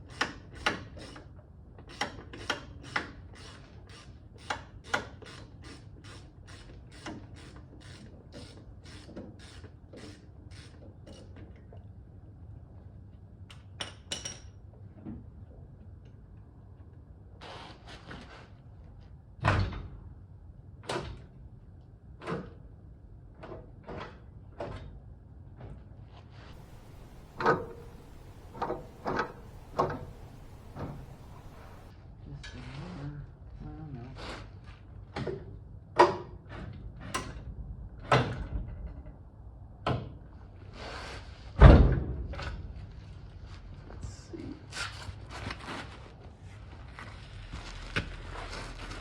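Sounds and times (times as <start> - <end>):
heavy thud: 26.6 - 31.9
tools clunking under car: 26.6 - 31.9.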